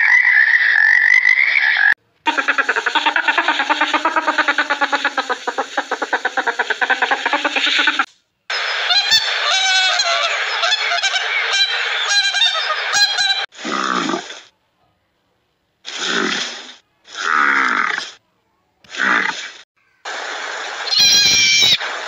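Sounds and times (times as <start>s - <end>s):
waterfowl honking and calling: 0.0s - 8.1s, 9.0s - 13.4s.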